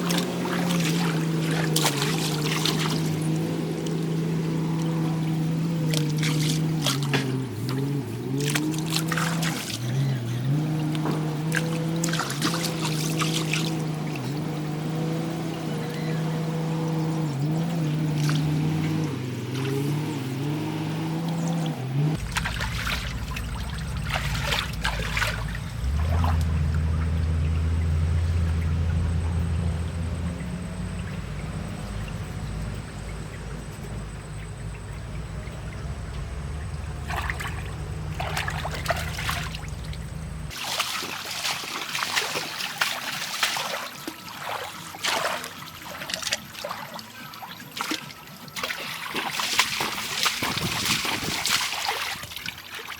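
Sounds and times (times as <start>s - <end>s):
diesel engine running: 0.0s - 40.6s
water trickling and splashing: 0.0s - 52.9s.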